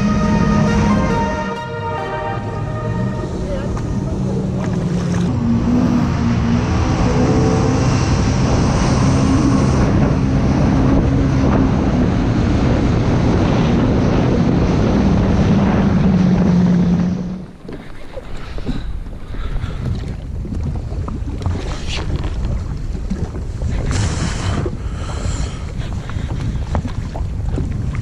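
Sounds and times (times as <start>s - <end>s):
jet ski engine droning: 0.0s - 19.3s
water rushing past hull: 0.0s - 28.0s
wind on microphone: 2.6s - 28.0s.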